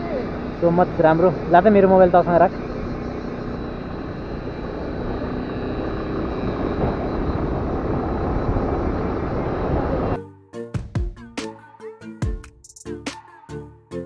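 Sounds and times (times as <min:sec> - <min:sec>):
scooter engine running: 0:00.0 - 0:10.2
wind over microphone: 0:02.5 - 0:10.2.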